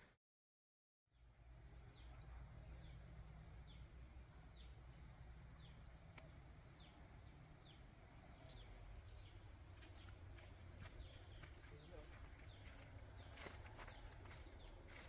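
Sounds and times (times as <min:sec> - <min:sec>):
bird chirping: 0:01.2 - 0:15.0.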